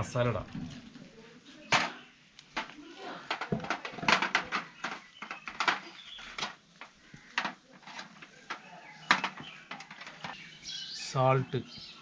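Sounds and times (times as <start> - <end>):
containers and utensils clicking: 1.7 - 10.4.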